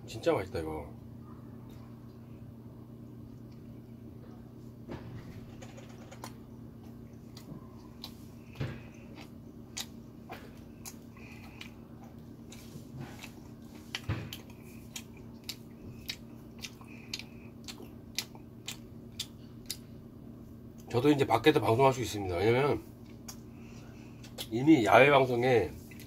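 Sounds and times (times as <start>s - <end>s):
faint steady hum: 0.0s - 26.0s
person chewing sticky rice cake: 5.8s - 21.0s, 22.9s - 26.0s
wet mouth smacks and clicks: 9.2s - 10.0s, 14.3s - 19.9s.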